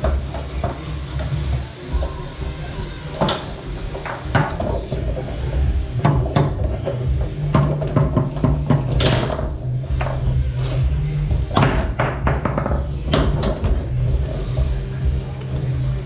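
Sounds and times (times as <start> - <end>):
foosball ball clacking: 3.2 - 10.2, 11.5 - 13.9.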